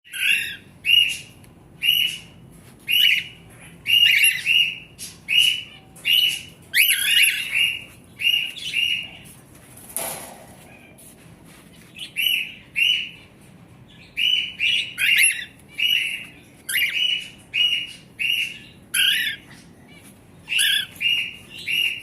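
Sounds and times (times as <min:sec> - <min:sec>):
cockatiels chirping: 0:00.1 - 0:09.4, 0:11.7 - 0:22.0
rustling: 0:07.5 - 0:12.4.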